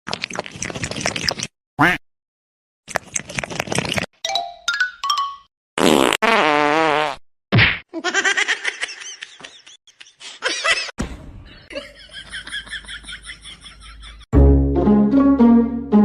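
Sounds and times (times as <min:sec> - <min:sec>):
people laughing: 0:08.0 - 0:10.9, 0:11.7 - 0:14.3.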